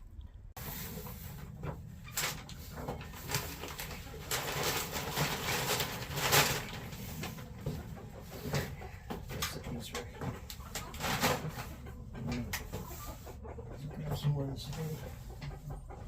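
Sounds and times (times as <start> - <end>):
hay rustling: 0.6 - 7.7
poultry cooing clucks: 1.1 - 16.0.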